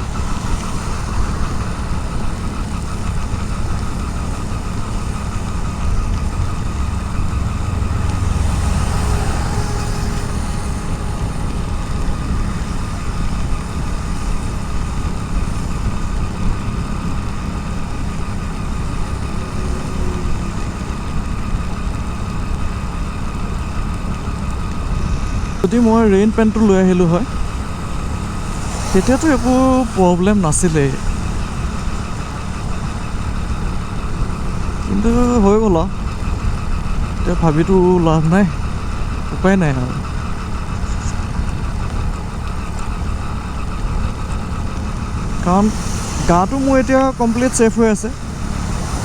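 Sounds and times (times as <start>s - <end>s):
wind noise: 0.0s - 37.9s
motorcycle engine running: 0.0s - 49.0s
rain: 0.0s - 49.0s.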